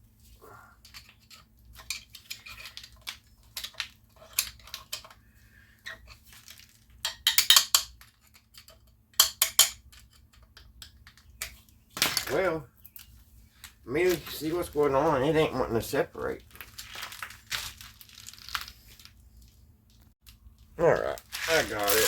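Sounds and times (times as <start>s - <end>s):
metal parts and tools clinking: 0.8s - 5.2s, 5.8s - 12.4s.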